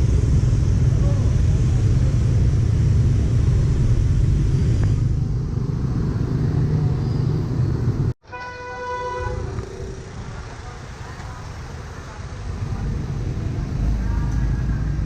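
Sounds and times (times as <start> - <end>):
low rumble of street traffic: 0.0 - 15.0
quiet street noise: 0.0 - 15.0
car horn: 8.2 - 9.6.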